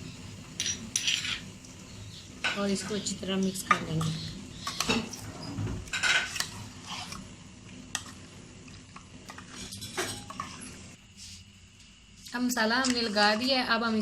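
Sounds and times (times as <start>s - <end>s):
spoon scraping a bowl: 0.6s - 1.5s, 4.0s - 7.2s.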